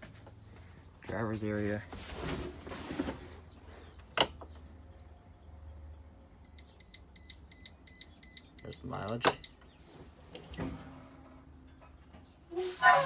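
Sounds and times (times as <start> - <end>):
dashboard chime beeping rapidly: 6.5 - 9.5.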